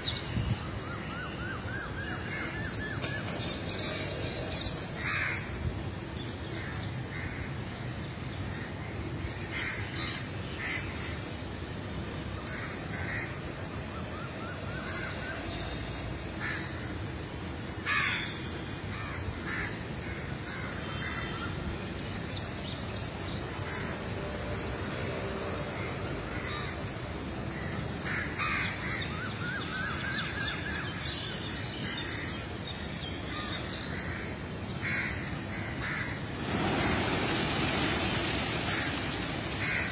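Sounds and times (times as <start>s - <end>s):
steady background noise: 0.0s - 39.9s
birds calling: 27.5s - 39.9s.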